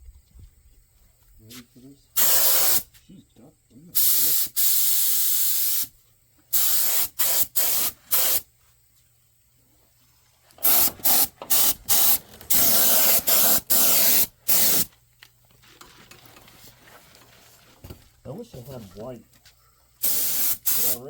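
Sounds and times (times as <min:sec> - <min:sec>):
spray paint can hissing: 0:02.2 - 0:02.9, 0:04.0 - 0:05.9, 0:06.5 - 0:08.5, 0:10.6 - 0:14.9, 0:20.0 - 0:21.0.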